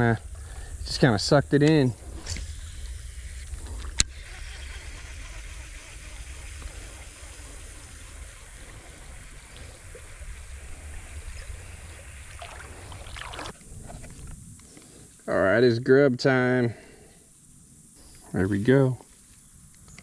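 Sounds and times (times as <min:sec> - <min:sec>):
low rumble: 0:00.0 - 0:14.6
creek water flowing: 0:00.0 - 0:15.4.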